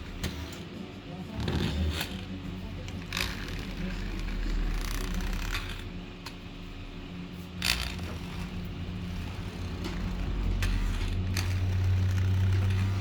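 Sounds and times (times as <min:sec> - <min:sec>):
steady low hum: 0:00.0 - 0:13.0
sharp clicks and scrapes: 0:07.6 - 0:13.0.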